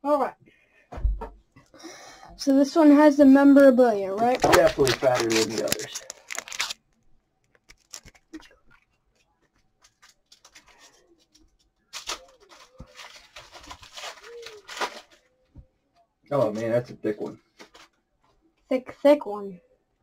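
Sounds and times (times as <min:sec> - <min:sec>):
card wrapper crinkling and tearing: 0:04.2 - 0:08.8, 0:09.5 - 0:15.3.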